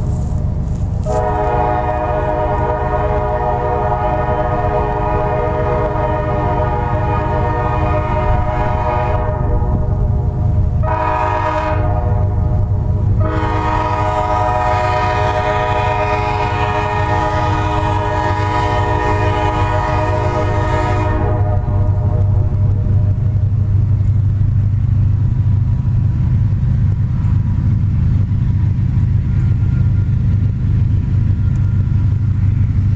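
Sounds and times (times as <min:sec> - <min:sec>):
low diesel locomotive rumble: 0:00.0 - 0:32.9
locomotive horn blasts: 0:01.0 - 0:23.5.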